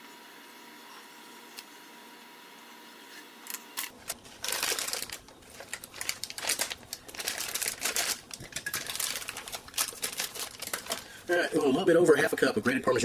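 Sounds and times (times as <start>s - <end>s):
plastic package crinkling: 3.8s - 11.4s.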